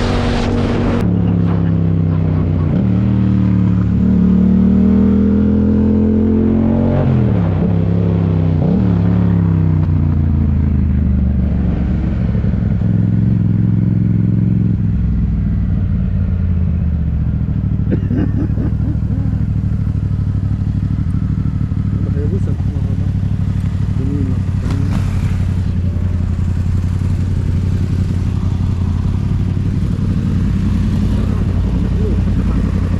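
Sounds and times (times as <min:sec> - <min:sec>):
motorcycle engine running: 0:09.8 - 0:32.9.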